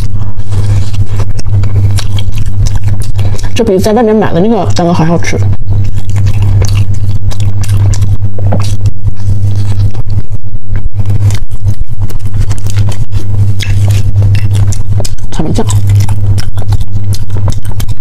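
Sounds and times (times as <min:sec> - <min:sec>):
loud low hum: 0:00.0 - 0:18.0
wet chewing mouth clicks: 0:00.6 - 0:03.8, 0:05.4 - 0:10.2, 0:10.8 - 0:18.0.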